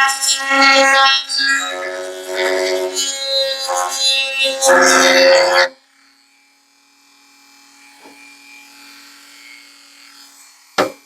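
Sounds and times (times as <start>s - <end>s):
rotary tool humming: 0.0s - 11.0s
sharp knock: 10.8s - 11.0s.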